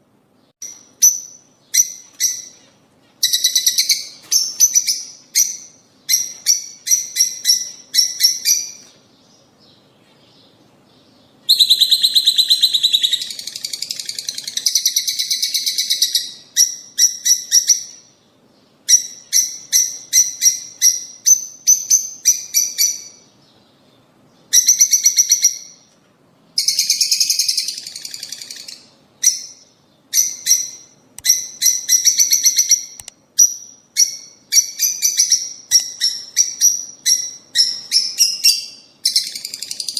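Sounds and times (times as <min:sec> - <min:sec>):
lovebirds chirping: 0:00.4 - 0:26.0, 0:26.6 - 0:39.9.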